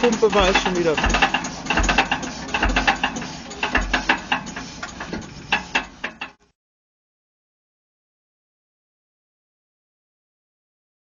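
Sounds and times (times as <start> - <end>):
diesel engine thumping: 0.0 - 6.4
mechanical clicking and clatter: 0.0 - 6.5.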